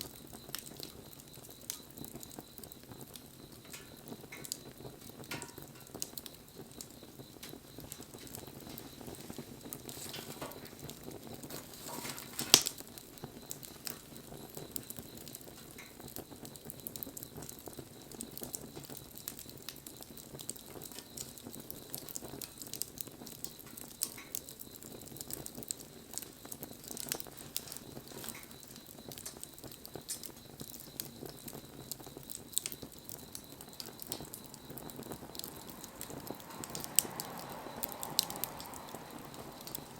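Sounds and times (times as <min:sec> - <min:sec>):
wood fire crackling: 0:00.0 - 0:39.9
loud pop of fire: 0:03.6 - 0:16.1.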